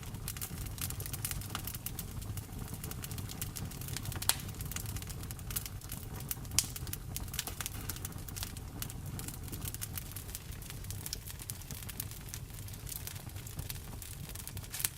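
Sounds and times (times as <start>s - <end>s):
low rumble of flames: 0.0s - 14.9s
wood fire crackling: 0.0s - 14.9s
loud sharp fire pops: 3.1s - 14.9s.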